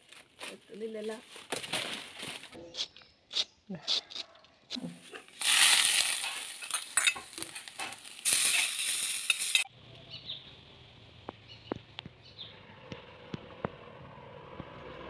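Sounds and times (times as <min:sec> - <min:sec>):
metal spatula scraping wok: 0:05.1 - 0:09.7
food sizzling in hot oil: 0:05.3 - 0:09.7.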